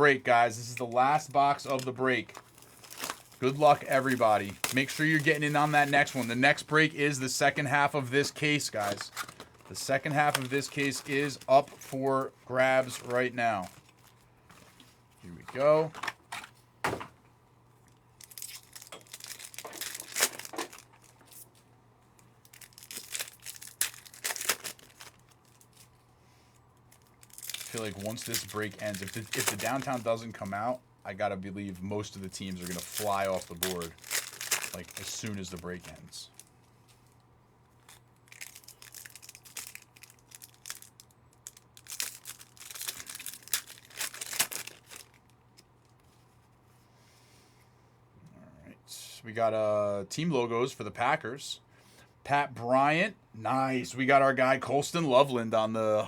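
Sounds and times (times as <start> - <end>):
wrappers tearing and crinkling: 0.6 - 14.3, 18.2 - 21.6, 22.4 - 26.0, 26.8 - 30.7, 31.6 - 37.2, 37.8 - 46.0.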